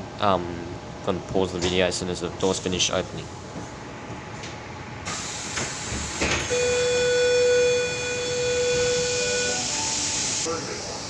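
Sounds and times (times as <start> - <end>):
pneumatic door hiss: 5.0 - 11.0
steady electronic tone: 6.5 - 10.5.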